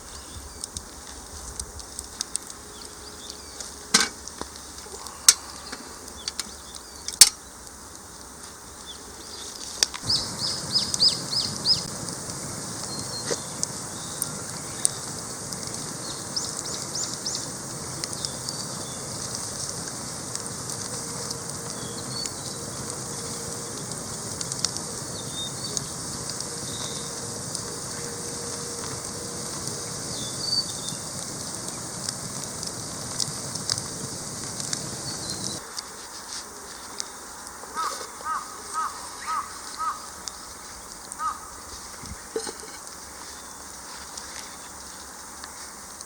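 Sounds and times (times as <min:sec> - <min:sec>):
campfire crackling and popping: 0:00.0 - 0:46.0
small birds chirping: 0:02.3 - 0:03.8, 0:04.9 - 0:07.7, 0:08.6 - 0:19.8, 0:20.8 - 0:31.9, 0:34.8 - 0:35.6, 0:36.8 - 0:42.4, 0:43.1 - 0:45.2.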